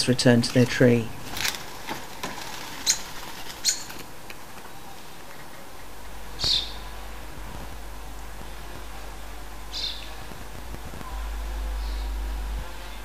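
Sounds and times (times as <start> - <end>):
high bird chirps: 6.4 - 6.9, 9.7 - 10.2.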